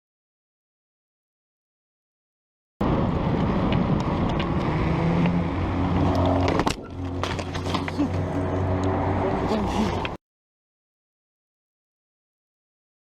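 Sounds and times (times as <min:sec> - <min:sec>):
car engine and road noise: 0:02.8 - 0:10.2.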